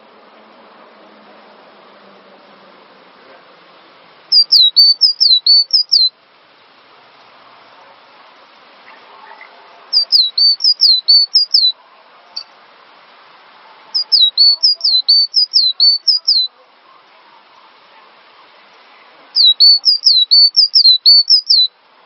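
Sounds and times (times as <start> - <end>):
background hiss: 0.0 - 22.0
bird singing whistled notes: 4.3 - 6.2, 9.3 - 11.8, 14.0 - 16.5, 19.3 - 21.8.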